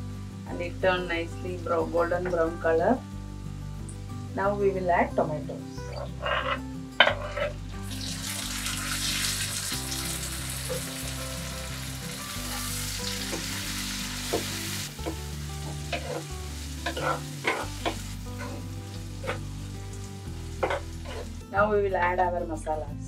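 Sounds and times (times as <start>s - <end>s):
tomatoes sizzling in hot oil: 0.0s - 22.6s
metal spoon scraping pot: 5.9s - 7.6s, 15.9s - 19.4s, 20.6s - 21.3s.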